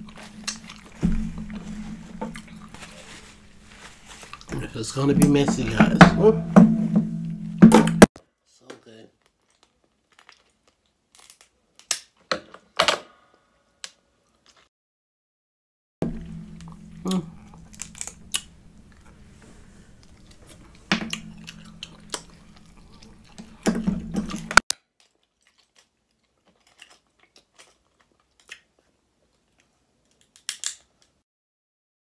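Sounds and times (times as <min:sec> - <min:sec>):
low steady hum: 0:00.0 - 0:08.1, 0:16.0 - 0:24.6
chewing with wet clicks: 0:09.2 - 0:12.0, 0:20.0 - 0:23.7, 0:24.3 - 0:30.8.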